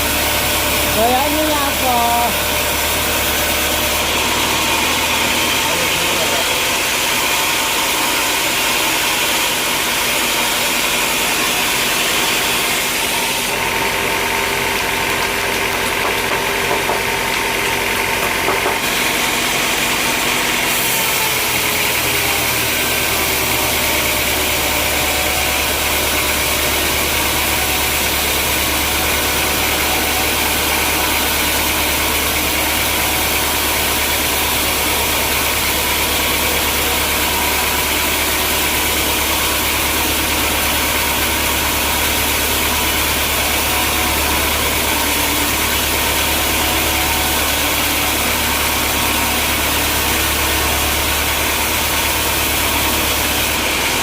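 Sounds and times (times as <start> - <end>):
sawmill machinery motor hum: 0.0 - 54.0.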